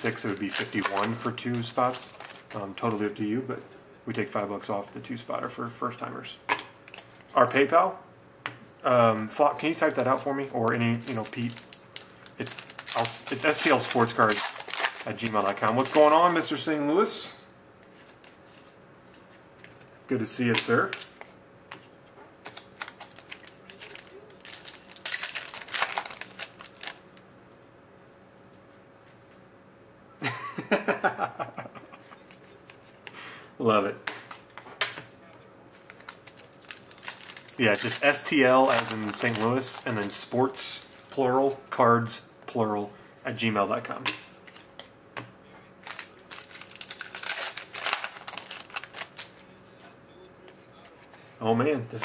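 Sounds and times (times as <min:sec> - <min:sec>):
cards rustling being handled: 0:00.0 - 0:03.0, 0:09.8 - 0:16.5, 0:17.8 - 0:27.0, 0:35.7 - 0:41.1, 0:45.8 - 0:49.4
wrapper crinkling being torn open: 0:00.0 - 0:03.0, 0:10.5 - 0:16.4, 0:22.4 - 0:27.0, 0:35.8 - 0:41.0, 0:45.8 - 0:49.4.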